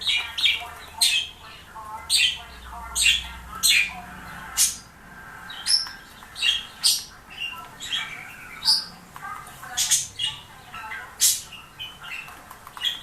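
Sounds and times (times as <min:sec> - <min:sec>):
bird warbling chatter: 0:00.0 - 0:13.0
bird chirps and squawks: 0:02.1 - 0:09.0, 0:09.6 - 0:13.0.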